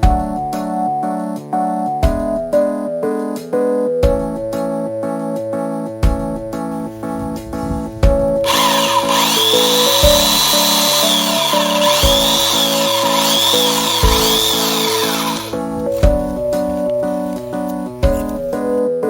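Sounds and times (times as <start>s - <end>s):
background music with steady beat: 0.0s - 19.0s
electric chainsaw cutting wood: 8.4s - 16.3s.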